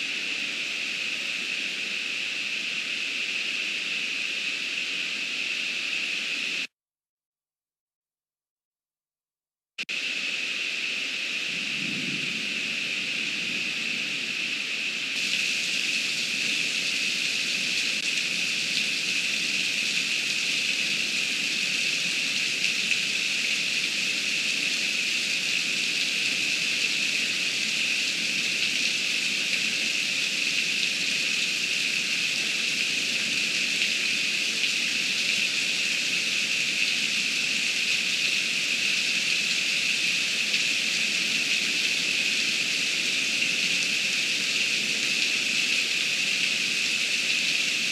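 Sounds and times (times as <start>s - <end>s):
heavy rain pouring: 10.0s - 47.9s.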